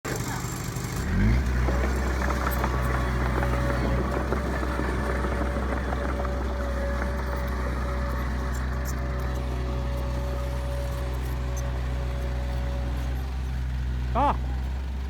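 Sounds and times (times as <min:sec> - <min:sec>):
heavy diesel engine running: 0:00.1 - 0:15.0
high engine whine: 0:00.2 - 0:15.0.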